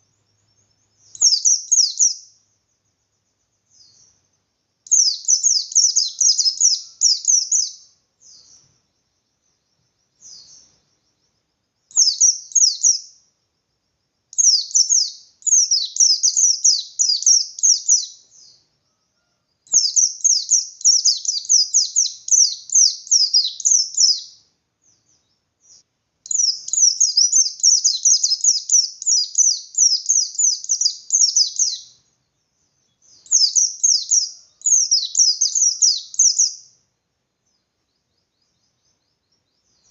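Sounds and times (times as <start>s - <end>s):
bird singing high chattering notes: 0.0s - 2.5s, 3.5s - 8.7s, 11.9s - 13.2s, 14.3s - 18.7s, 19.7s - 36.8s.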